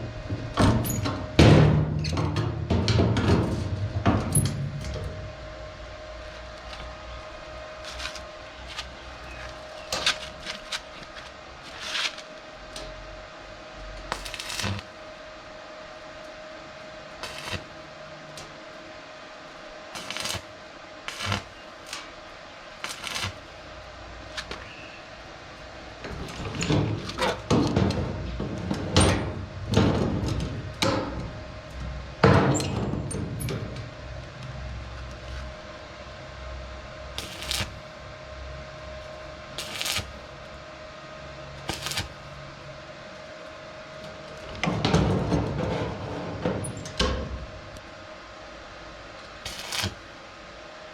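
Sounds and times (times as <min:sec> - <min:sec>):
steady hum: 0:00.0 - 0:50.9
knocks and clanks: 0:00.2 - 0:05.2, 0:26.1 - 0:31.3, 0:44.6 - 0:47.5.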